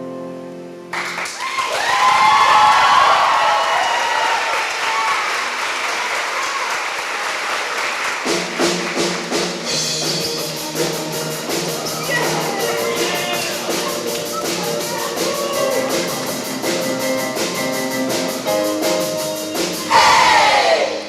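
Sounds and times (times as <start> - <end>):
audience applauding: 0.9 - 9.7, 11.4 - 17.5
steady ticking beat: 9.6 - 19.8.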